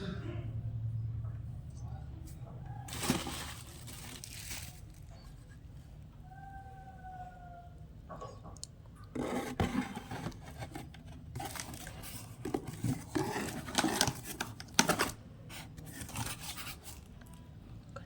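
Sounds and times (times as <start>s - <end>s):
rustling and scraping handling: 2.2s - 6.0s, 9.0s - 17.4s.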